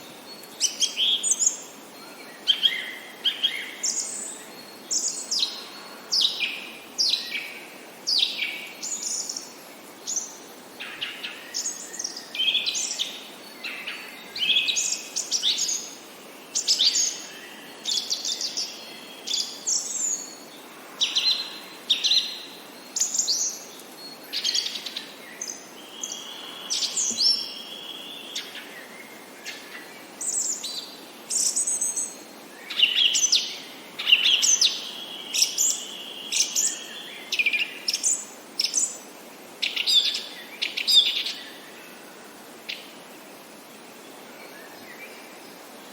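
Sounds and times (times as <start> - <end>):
faint steady hiss: 0.0 - 45.9.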